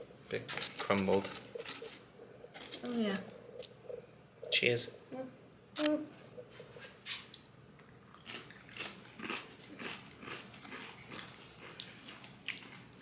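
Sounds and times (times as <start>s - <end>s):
crisps being chewed: 0.5s - 2.9s, 7.3s - 13.0s.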